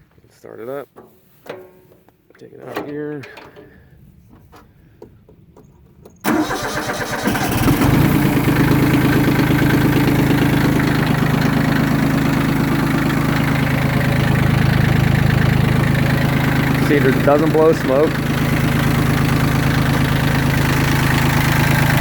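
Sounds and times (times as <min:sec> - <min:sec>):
starter cranking diesel engine: 0:06.2 - 0:22.0
diesel engine idling: 0:06.3 - 0:22.0.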